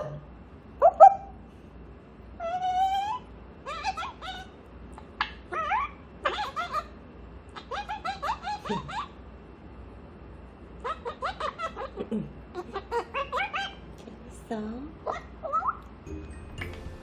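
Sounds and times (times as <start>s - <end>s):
parrot chattering: 0.0s - 1.4s, 2.4s - 9.3s, 10.7s - 14.0s, 15.0s - 15.9s.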